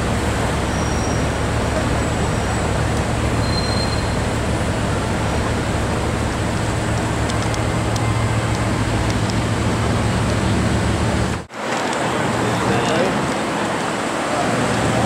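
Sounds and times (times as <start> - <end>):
car engine idling: 0.0 - 11.5
street traffic hiss: 0.0 - 15.0.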